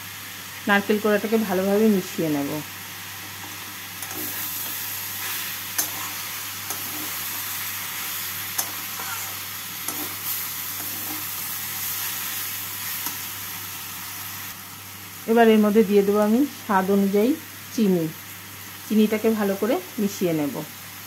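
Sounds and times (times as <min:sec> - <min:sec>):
vegetables sizzling in a pan: 0:00.0 - 0:21.0
metal spatula clicking on pan: 0:06.6 - 0:06.9, 0:08.5 - 0:08.8.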